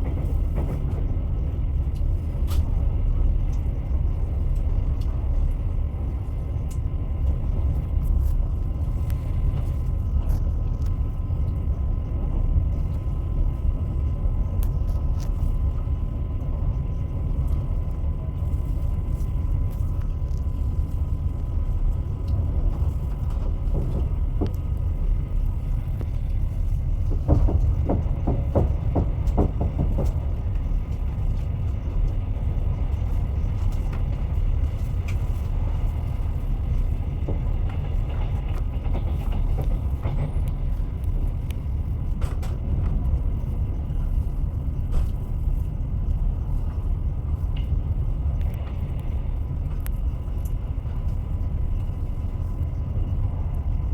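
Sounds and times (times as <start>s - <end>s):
train wheels rumbling on rails: 0.0s - 53.9s
wheels clacking over rail joints: 27.1s - 30.7s.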